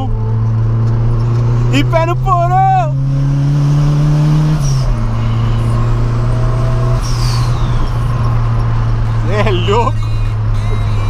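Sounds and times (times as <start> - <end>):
car engine running: 0.0 - 11.0
faint turbo whistle: 4.9 - 8.6.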